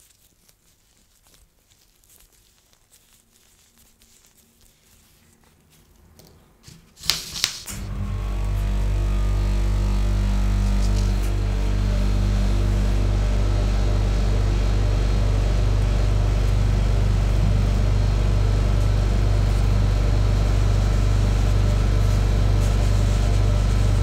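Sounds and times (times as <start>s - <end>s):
refrigeration unit humming: 6.0s - 24.0s.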